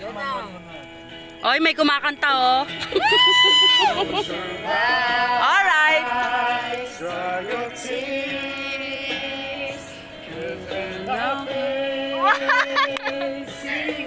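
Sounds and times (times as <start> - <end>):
backing track music: 0.0 - 14.0
man singing karaoke: 6.0 - 14.0.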